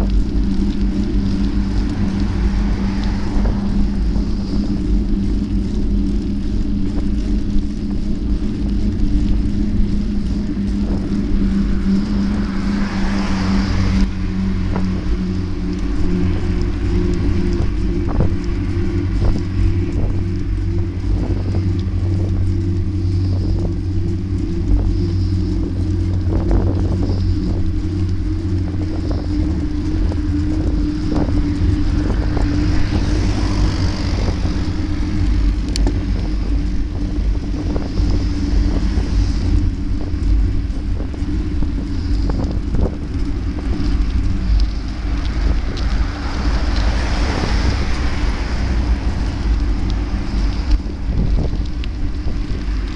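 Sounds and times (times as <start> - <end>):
motorcycle engine cruising: 0.0 - 52.9
wind rushing over microphone: 0.0 - 52.9.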